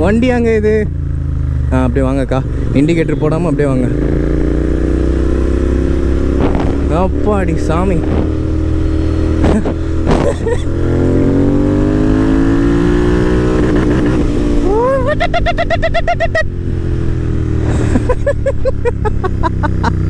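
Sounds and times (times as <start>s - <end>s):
motorcycle engine running: 0.0s - 15.8s, 16.4s - 20.0s
man laughing loudly: 9.5s - 10.9s, 14.6s - 16.6s, 17.6s - 20.0s.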